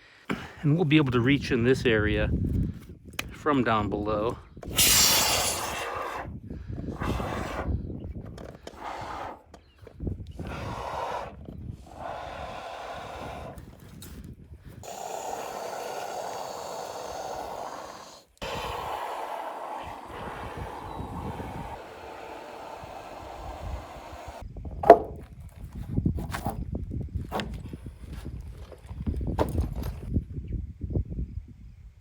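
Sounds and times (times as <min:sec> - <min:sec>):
spray foam can hissing: 0:04.7 - 0:06.2.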